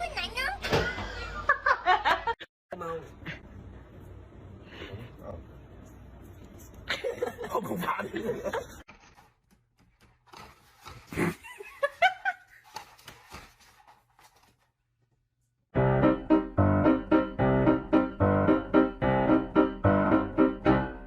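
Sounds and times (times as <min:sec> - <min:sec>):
piano music: 0:15.8 - 0:21.0.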